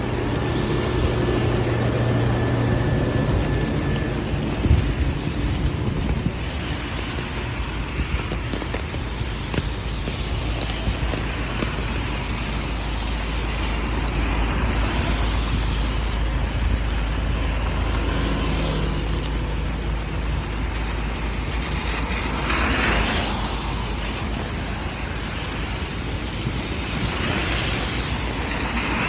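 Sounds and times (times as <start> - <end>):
vehicle road noise rumble: 0.0 - 29.0.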